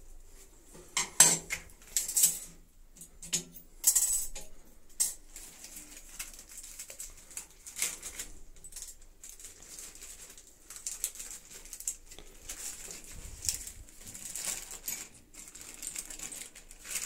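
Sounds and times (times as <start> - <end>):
small items clicking and rustling: 1.0 - 17.0.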